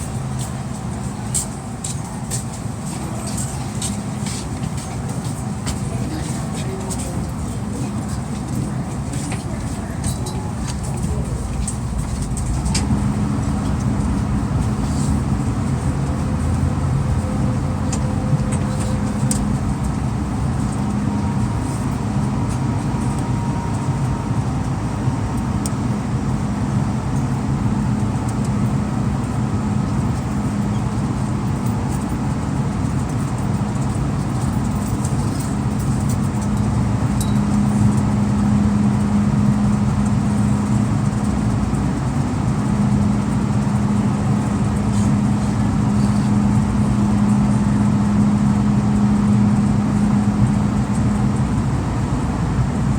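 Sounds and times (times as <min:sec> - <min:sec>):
train car rumble and hum: 0:00.0 - 0:52.9.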